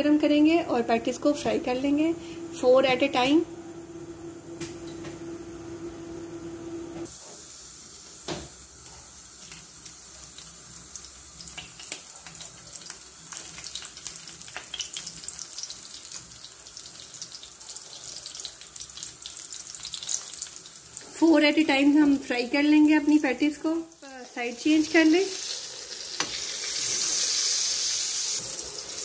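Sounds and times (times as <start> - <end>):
low steady hum: 0.0 - 6.6
patties sizzling in hot oil: 7.0 - 29.0.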